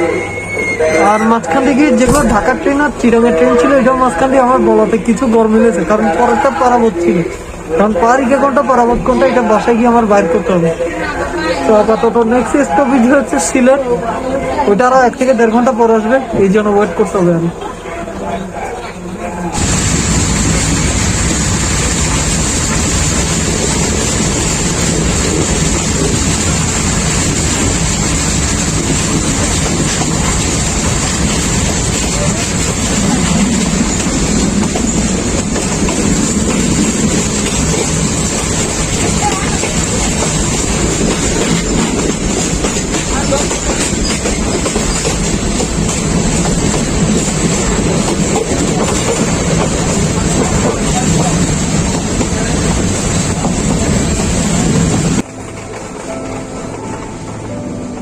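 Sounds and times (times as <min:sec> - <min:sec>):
passenger train running: 0:00.0 - 0:58.0
rail joint clicks: 0:24.0 - 0:58.0.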